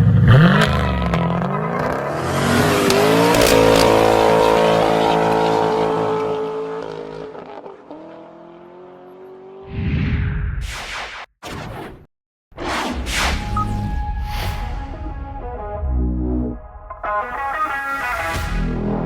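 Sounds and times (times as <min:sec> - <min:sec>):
engine revving through exhaust: 0:00.0 - 0:09.6.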